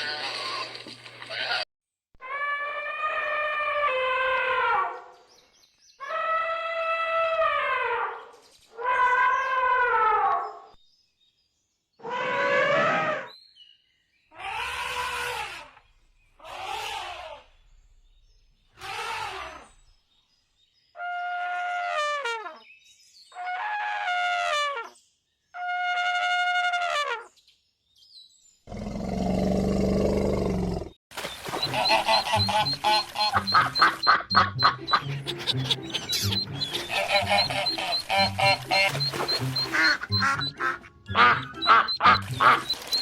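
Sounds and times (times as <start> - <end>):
animal calls: 28.7 - 43.0
rapid pulsing call: 31.2 - 43.0.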